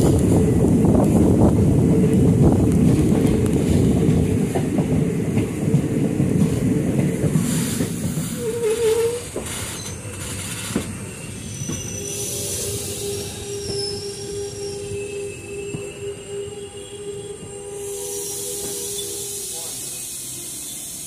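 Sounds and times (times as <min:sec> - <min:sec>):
train wheels running on rail: 0:00.0 - 0:21.0
wheel squeal: 0:08.3 - 0:16.2.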